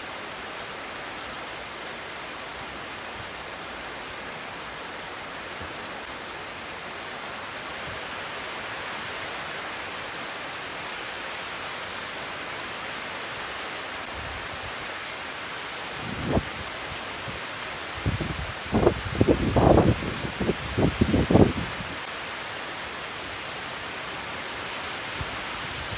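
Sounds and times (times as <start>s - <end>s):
steady rain falling: 0.0s - 25.9s
wind buffeting microphone: 16.0s - 16.7s, 18.0s - 22.0s.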